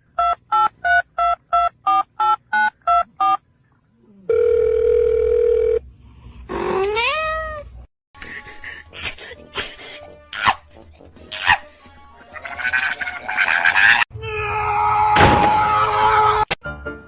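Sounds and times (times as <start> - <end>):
steady phone tone: 4.3 - 5.8
cat meowing: 6.8 - 7.6.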